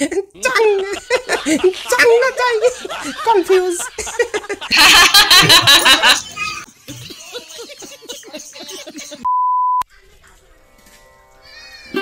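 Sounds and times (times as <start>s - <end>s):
high censor bleep: 9.3s - 9.8s.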